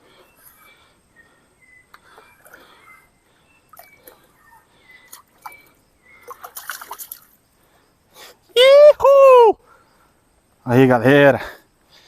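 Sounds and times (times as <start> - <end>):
water splashing: 6.2 - 7.4.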